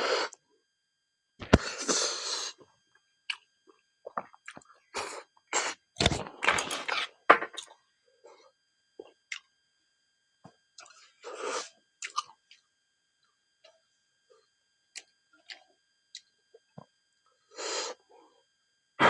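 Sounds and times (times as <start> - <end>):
wet chewing clicks and smacks: 4.1 - 4.7, 9.3 - 9.5, 12.0 - 12.6
crunchy chewing: 10.8 - 12.6.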